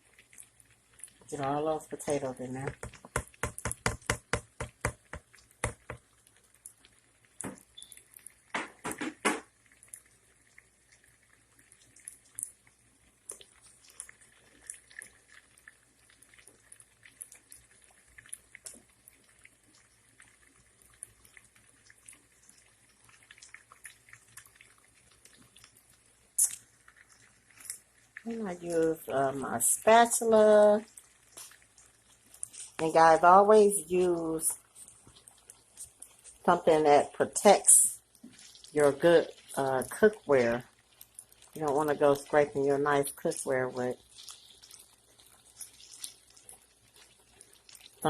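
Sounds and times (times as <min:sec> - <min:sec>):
potatoes sizzling in a pan: 0:00.0 - 0:48.0
potato slices knocking into pan: 0:02.7 - 0:06.0.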